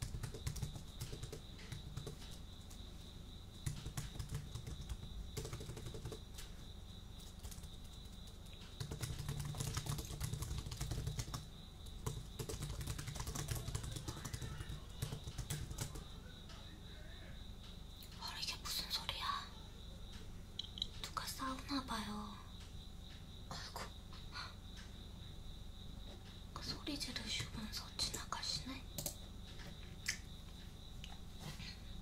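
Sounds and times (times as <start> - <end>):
computer keyboard typing: 0.0 - 2.8, 3.6 - 6.4, 7.2 - 16.1, 29.0 - 29.2
cricket trill: 0.0 - 32.0.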